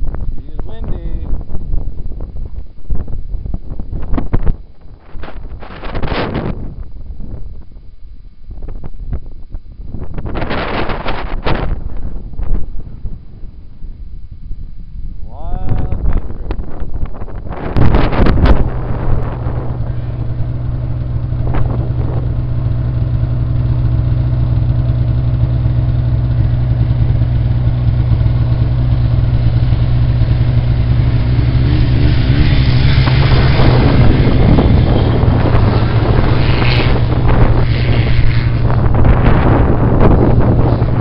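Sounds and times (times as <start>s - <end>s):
snowmobile engine running: 3.9s - 6.8s, 10.0s - 13.4s, 16.1s - 41.0s
rushing noise: 10.0s - 41.0s.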